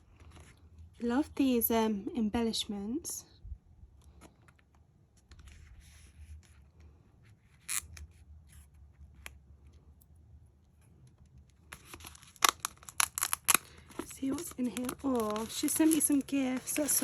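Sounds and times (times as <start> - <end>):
paper packaging clicks and rustles: 10.8 - 17.0
envelope paper rustling: 11.5 - 17.0.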